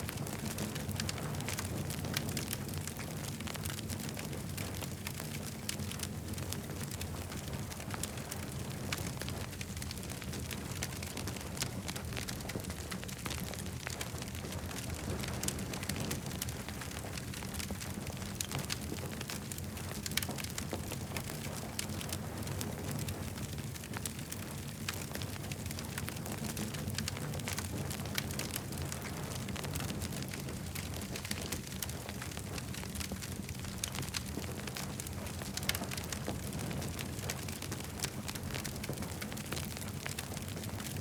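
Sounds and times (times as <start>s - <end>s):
campfire crackling and popping: 0.0s - 41.0s
low fire rumble: 0.0s - 41.0s.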